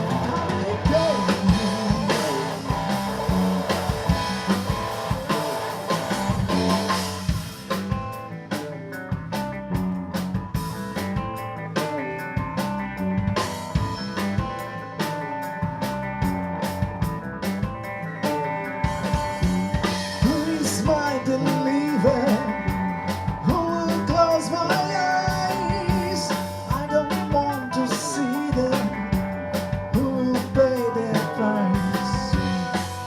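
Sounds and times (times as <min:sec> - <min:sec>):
drum kit beats: 0:00.0 - 0:33.0
rock guitar: 0:00.0 - 0:33.0.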